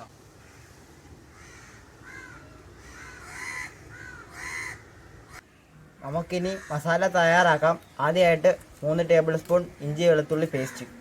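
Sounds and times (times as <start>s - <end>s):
crow cawing: 0.4s - 5.4s, 6.4s - 7.2s, 10.5s - 11.0s.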